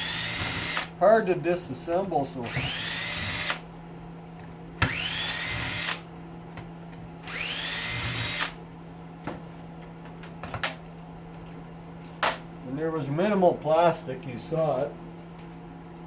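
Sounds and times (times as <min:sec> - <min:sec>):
cordless drill whining: 0:00.0 - 0:00.9, 0:02.4 - 0:03.6, 0:04.8 - 0:06.0, 0:07.2 - 0:08.6.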